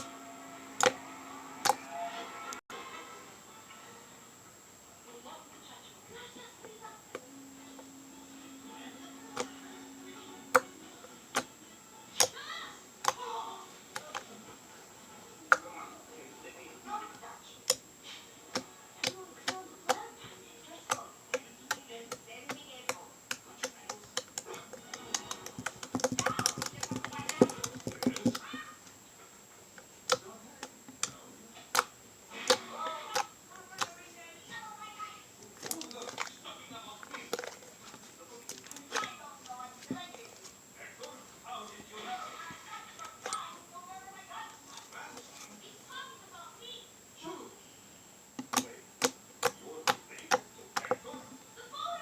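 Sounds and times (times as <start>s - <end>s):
slime popping while kneaded: 22.5s - 28.5s.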